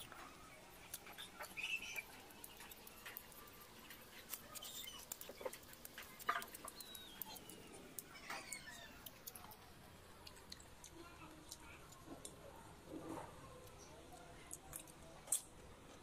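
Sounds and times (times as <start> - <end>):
chewing and lip-smacking: 0.0 - 12.6.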